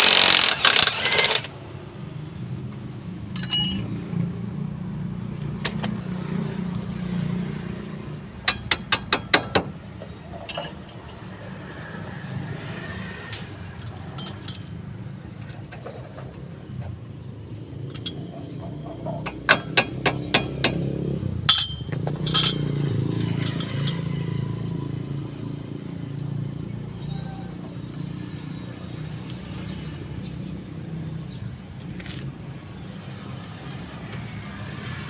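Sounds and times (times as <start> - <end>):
metal tools clinking: 3.4 - 4.0, 10.2 - 11.4, 13.4 - 14.8, 17.8 - 19.2, 21.5 - 24.2.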